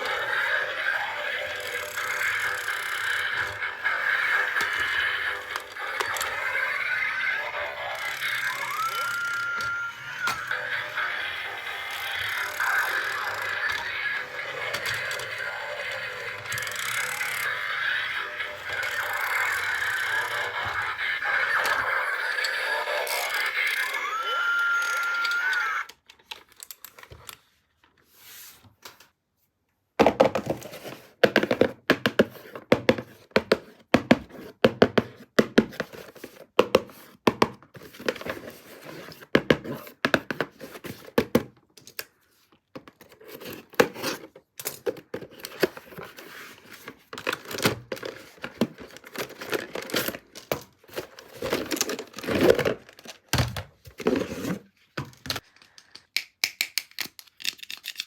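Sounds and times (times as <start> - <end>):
packaging tearing and crinkling: 56.8 - 58.0.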